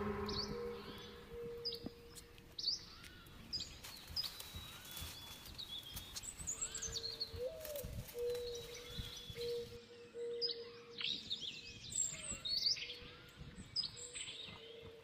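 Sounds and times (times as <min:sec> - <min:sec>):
low steady note: 0:00.0 - 0:02.1
forest birds chirping: 0:00.0 - 0:15.0.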